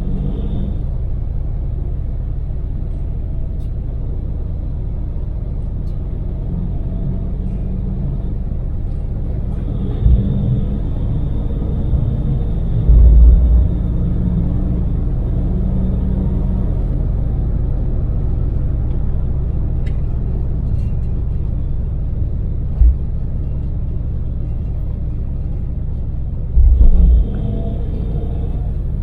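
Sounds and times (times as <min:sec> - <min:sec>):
van engine and road noise rumble: 0:00.0 - 0:29.0
low thump: 0:09.8 - 0:11.1, 0:11.7 - 0:14.6, 0:22.8 - 0:23.2, 0:26.6 - 0:27.4.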